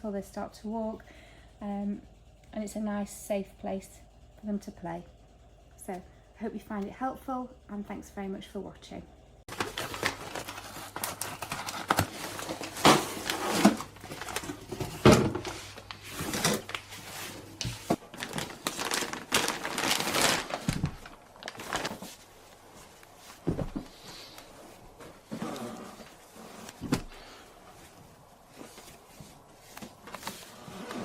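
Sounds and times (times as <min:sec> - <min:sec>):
rustling and crinkling: 0:09.5 - 0:31.0.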